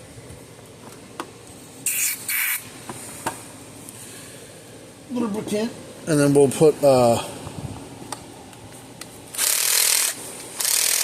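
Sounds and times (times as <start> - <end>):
aerosol can spraying: 1.9 - 2.6.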